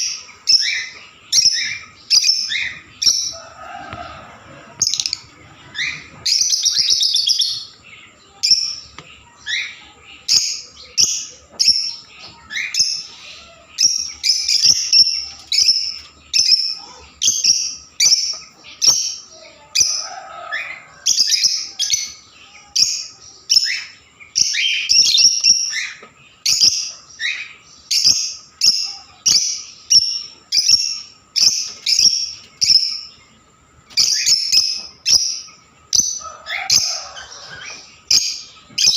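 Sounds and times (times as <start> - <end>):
parrots chirping shrilly: 36.0 - 38.9.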